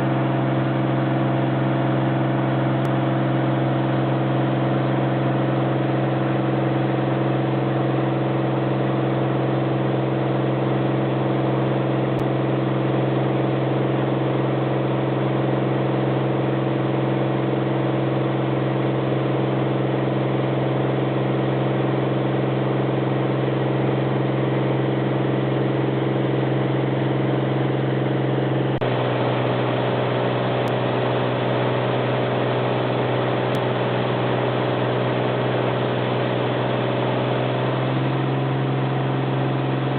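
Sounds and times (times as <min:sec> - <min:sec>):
propeller airplane engine droning: 0:00.0 - 0:39.9.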